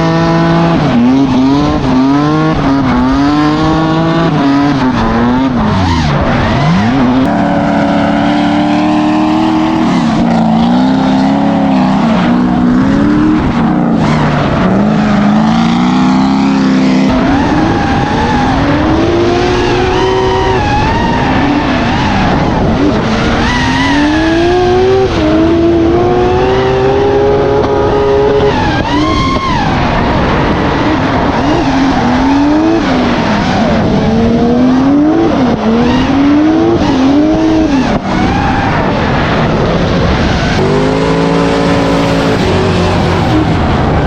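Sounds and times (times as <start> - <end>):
car engine revving: 0.0 - 44.0
tyre squeal: 13.2 - 25.0.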